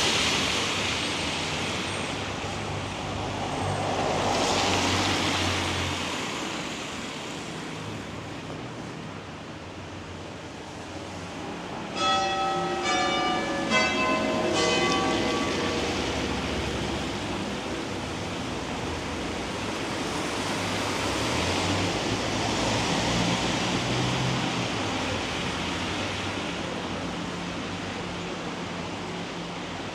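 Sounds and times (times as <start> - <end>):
rain hiss on wet road: 0.0 - 11.4, 15.0 - 29.9
traffic: 0.0 - 29.9
church bells ringing: 11.9 - 18.2.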